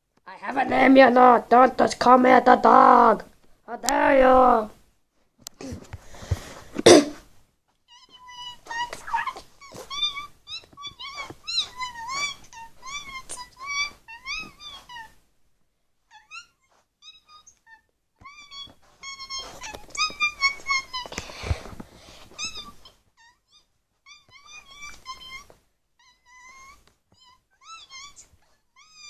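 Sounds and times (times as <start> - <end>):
cat chirping meows: 7.9 - 15.2, 16.1 - 21.1, 22.3 - 29.0.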